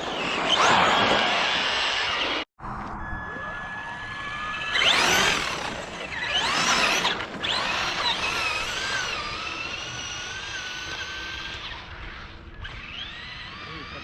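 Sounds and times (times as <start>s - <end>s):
electric toy truck motors whining: 0.0s - 2.5s, 3.4s - 14.0s.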